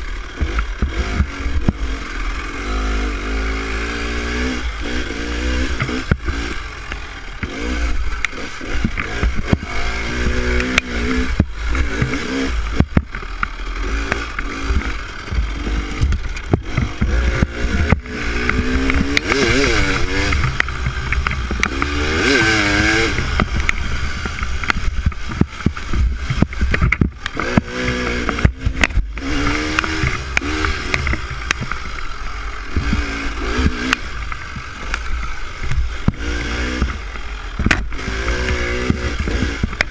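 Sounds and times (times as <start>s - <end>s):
dirt bike engine revving: 0.0s - 39.9s
knocks and rattles: 8.2s - 39.9s.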